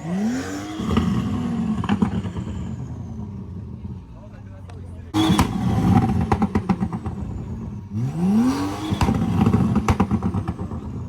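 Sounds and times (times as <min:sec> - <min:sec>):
car engine revving: 0:00.0 - 0:11.0
exhaust crackling pops: 0:04.7 - 0:07.4, 0:08.9 - 0:10.9.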